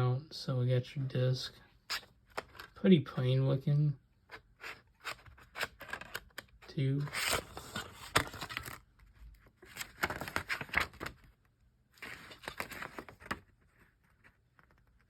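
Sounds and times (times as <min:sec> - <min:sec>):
paper booklet pages rustling: 0:04.3 - 0:11.4, 0:12.0 - 0:15.0.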